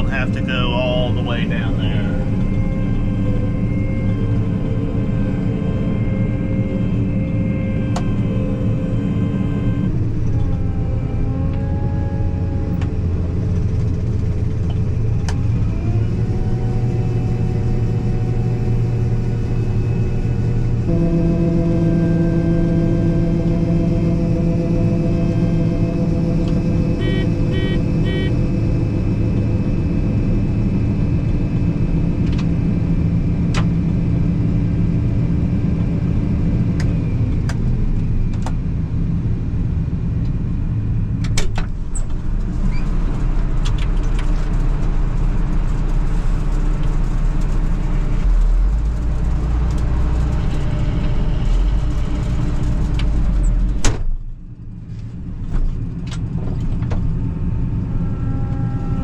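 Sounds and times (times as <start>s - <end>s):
combine engine running: 0.0s - 5.6s, 12.3s - 38.2s, 42.1s - 53.8s
short beeps: 27.0s - 28.3s.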